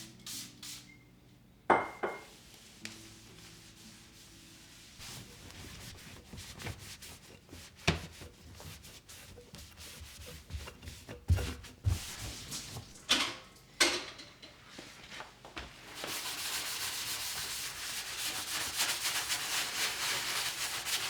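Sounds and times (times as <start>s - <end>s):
rubbing and scrubbing: 2.3s - 13.0s, 16.0s - 21.0s.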